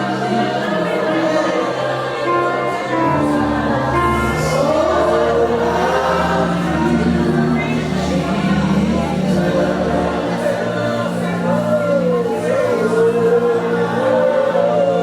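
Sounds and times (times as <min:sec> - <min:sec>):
group singing gospel: 0:00.0 - 0:15.0
keyboard chords: 0:00.0 - 0:15.0
bass notes: 0:03.0 - 0:14.3.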